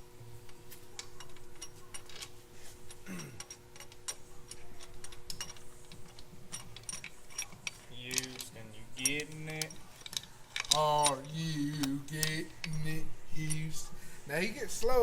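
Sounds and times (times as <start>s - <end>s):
ratchet wrench clicking: 3.4s - 12.8s.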